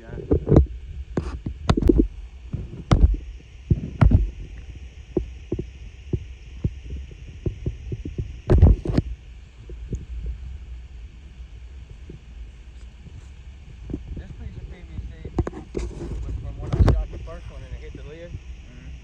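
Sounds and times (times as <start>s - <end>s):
dull thumps and knocks: 0.4s - 4.5s, 7.4s - 10.4s.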